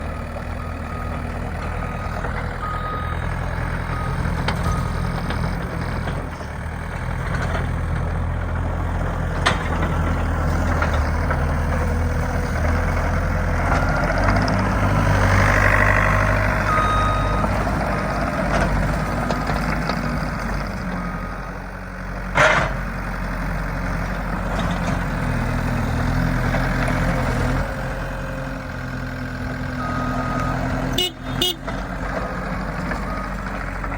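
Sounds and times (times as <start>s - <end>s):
diesel engine running: 0.0s - 33.9s
backup alarm beeping: 1.8s - 3.3s, 16.6s - 18.2s.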